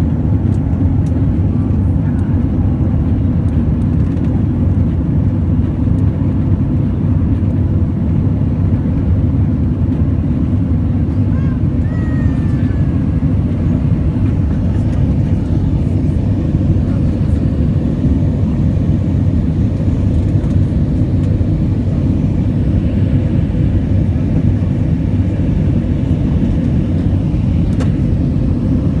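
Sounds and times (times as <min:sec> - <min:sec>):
airplane engines rumbling: 0:00.0 - 0:29.0.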